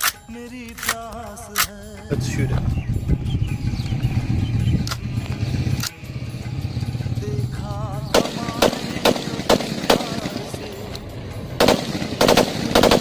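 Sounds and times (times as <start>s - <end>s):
rifle gunshots: 8.1s - 10.8s, 11.5s - 13.0s.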